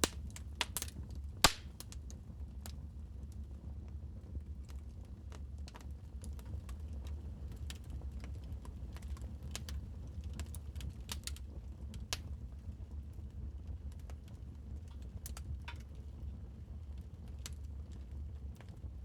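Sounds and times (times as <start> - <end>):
sharp pops and snaps: 0.0 - 1.9
fireplace fire crackling: 0.0 - 3.8, 4.5 - 19.0
low fire rumble: 0.0 - 19.0.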